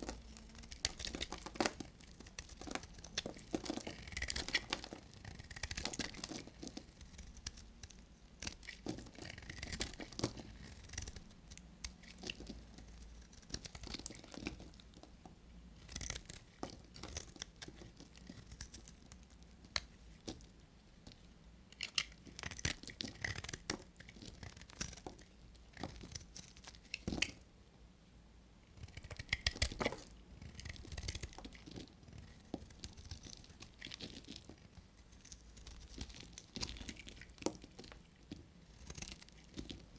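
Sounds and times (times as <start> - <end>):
blade cutting dry soap: 0.1 - 12.6.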